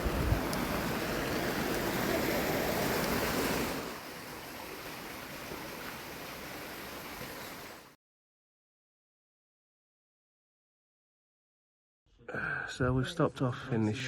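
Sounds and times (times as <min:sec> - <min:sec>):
water rushing: 0:00.0 - 0:08.0.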